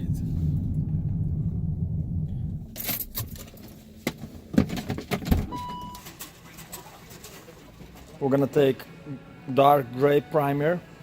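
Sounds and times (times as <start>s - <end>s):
short beep: 5.5s - 6.1s.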